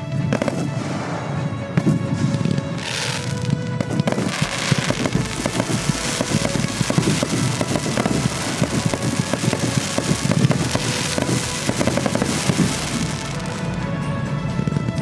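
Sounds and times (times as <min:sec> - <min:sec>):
fireworks popping and crackling: 0:00.0 - 0:15.0
music playing: 0:00.0 - 0:15.0.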